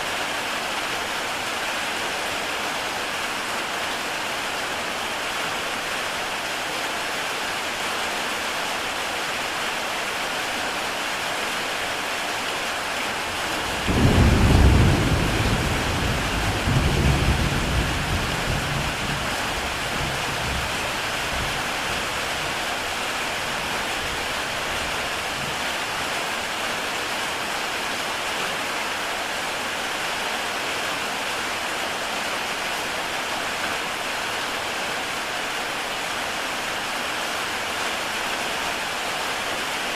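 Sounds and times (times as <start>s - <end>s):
heavy rain on a tile roof: 0.0s - 39.9s
thunder rumbling: 13.4s - 20.7s.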